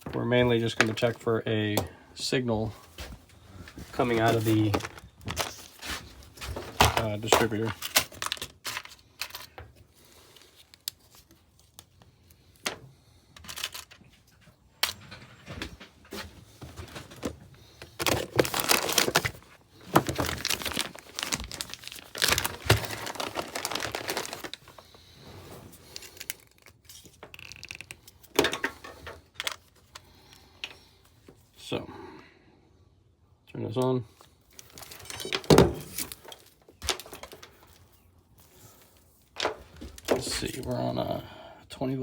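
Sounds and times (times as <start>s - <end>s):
crinkling and tearing: 3.9s - 12.4s, 16.8s - 28.4s.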